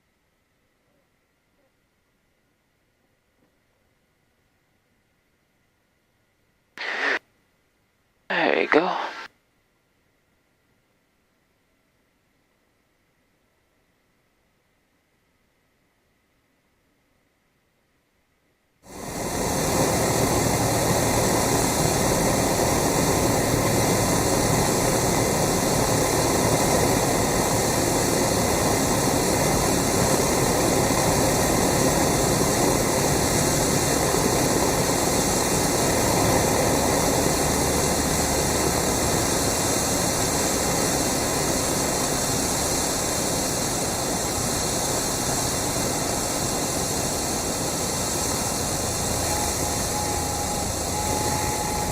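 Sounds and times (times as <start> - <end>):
airplane engine and propeller drone: 18.9 - 51.9.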